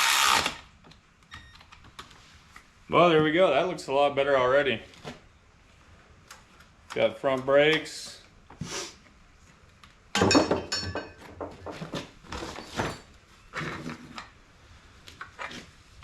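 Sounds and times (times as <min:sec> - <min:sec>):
parts knocking and clinking: 0:10.1 - 0:13.2.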